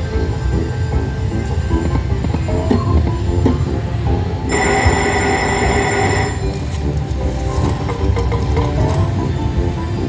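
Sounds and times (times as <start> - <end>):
low casino rumble: 0.0 - 10.0
slot machine electronic music: 4.5 - 6.8.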